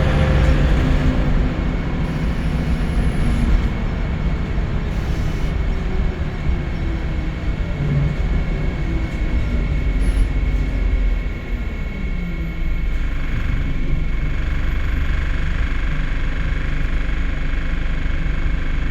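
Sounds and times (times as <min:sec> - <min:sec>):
bus engine from inside: 0:00.0 - 0:18.9.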